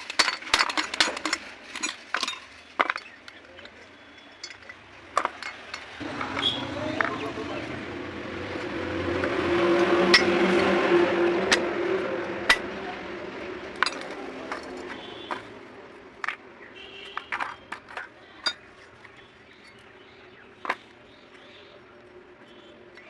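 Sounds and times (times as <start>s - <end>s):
metallic clinks of tools: 0.0s - 6.6s, 13.8s - 15.5s
vehicle running: 0.0s - 18.2s.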